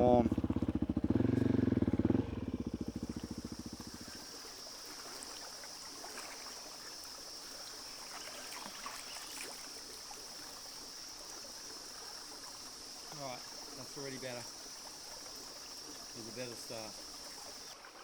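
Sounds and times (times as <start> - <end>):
motorcycle engine stopping: 0.0 - 4.2
cicadas droning: 0.0 - 18.0
creek water running over rocks: 0.0 - 18.0.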